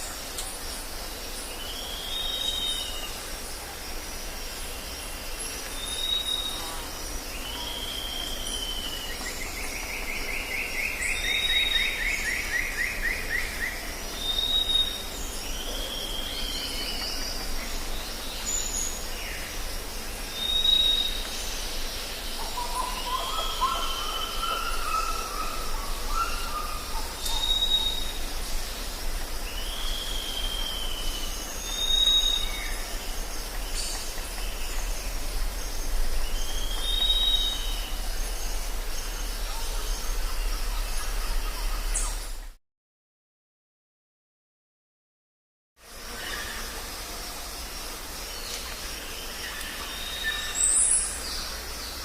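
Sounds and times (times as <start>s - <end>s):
insect drone: 0.0s - 42.6s, 45.8s - 52.0s
lower warbling bird call: 22.3s - 28.3s, 33.8s - 42.5s.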